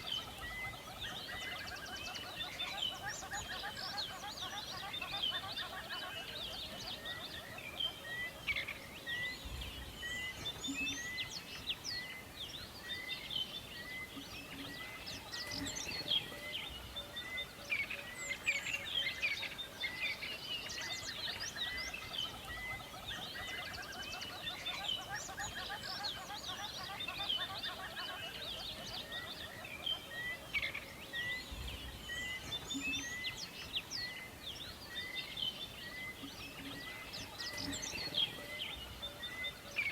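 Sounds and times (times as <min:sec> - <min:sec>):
birds chirping and calling: 0:00.0 - 0:39.9.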